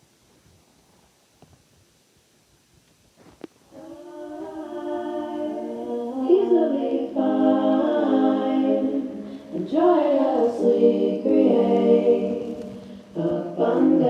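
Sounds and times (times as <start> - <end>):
group singing a cappella chant: 3.7 - 14.0.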